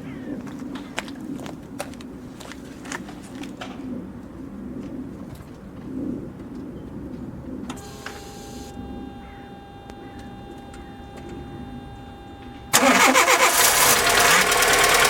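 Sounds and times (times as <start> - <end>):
steady electronic tone: 7.8 - 12.8
pigeons cooing: 8.8 - 12.0.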